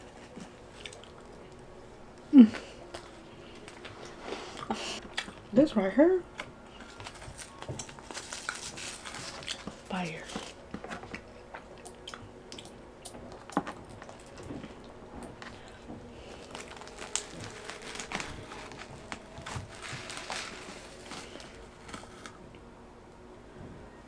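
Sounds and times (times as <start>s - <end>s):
pizza crackling as torn apart: 6.4s - 12.2s, 13.4s - 22.4s
paper rustling: 6.8s - 11.2s, 15.4s - 22.4s.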